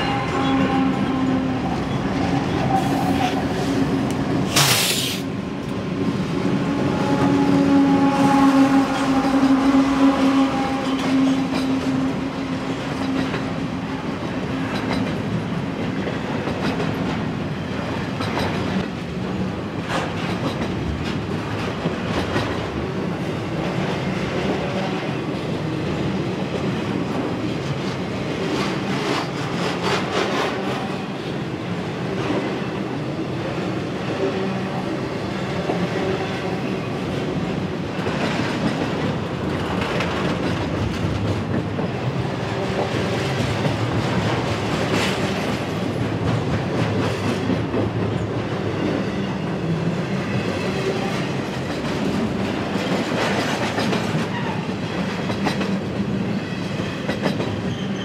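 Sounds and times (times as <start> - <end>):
diesel locomotive engine hum: 0.0 - 29.6.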